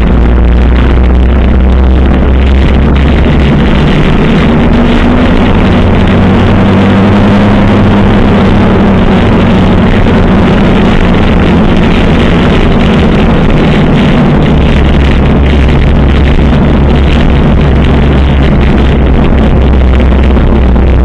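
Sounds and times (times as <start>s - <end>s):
motorcycle engines running: 0.0s - 21.0s.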